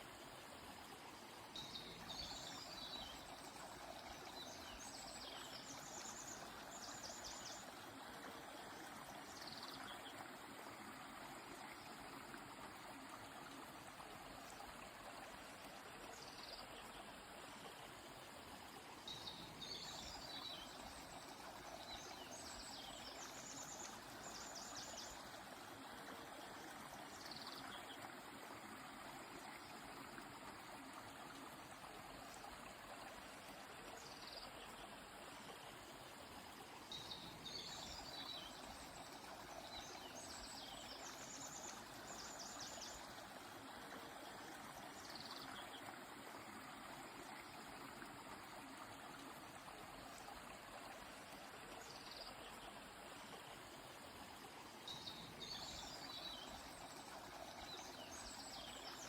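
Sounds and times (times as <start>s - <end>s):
river flowing: 0.0s - 59.0s
small birds singing: 19.1s - 25.3s, 36.9s - 43.2s, 54.9s - 59.0s.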